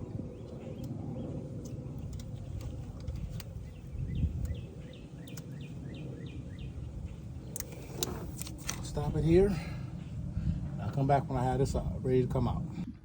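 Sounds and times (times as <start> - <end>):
bird chirping: 0.0 - 8.9
low rumbling noise: 0.0 - 13.0.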